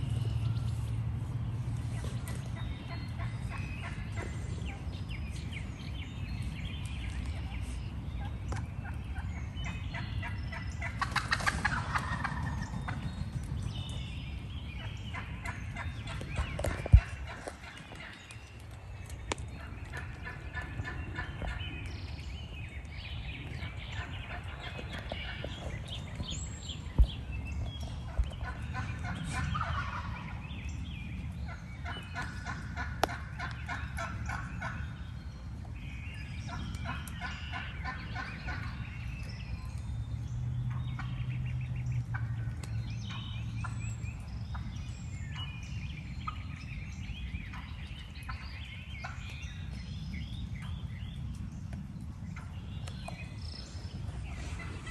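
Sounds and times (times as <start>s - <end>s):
turkeys gobbling: 2.0s - 4.9s, 8.2s - 13.1s, 14.8s - 18.2s, 19.6s - 21.6s, 23.6s - 26.2s, 28.0s - 30.4s, 31.4s - 34.8s, 36.5s - 38.8s, 46.2s - 46.5s, 48.3s - 49.6s.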